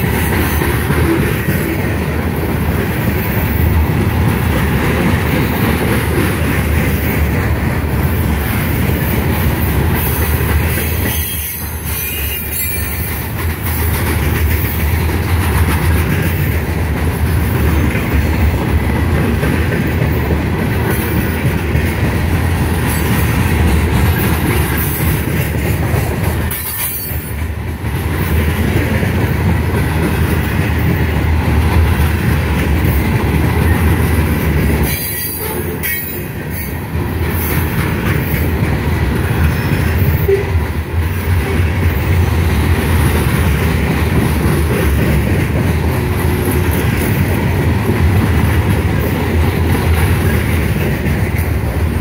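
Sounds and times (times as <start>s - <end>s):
train wheels rumbling on rail: 0.0s - 52.0s
wheels clacking over rail joints: 0.0s - 52.0s
wheel flanges squealing: 11.0s - 13.1s.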